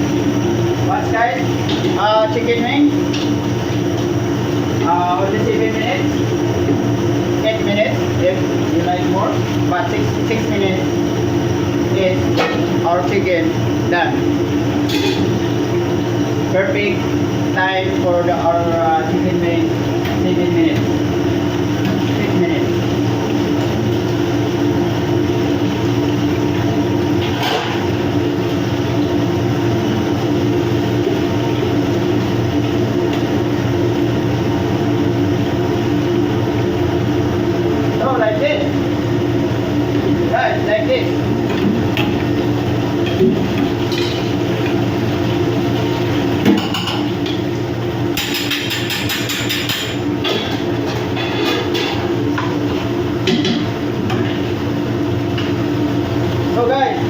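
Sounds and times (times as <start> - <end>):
low machinery hum: 0.0 - 57.0
metal utensils clattering on pan: 48.2 - 52.0.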